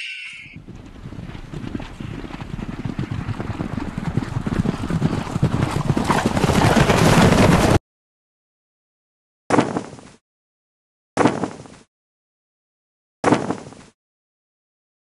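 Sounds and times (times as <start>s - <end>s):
galloping footfalls: 0.6s - 7.8s.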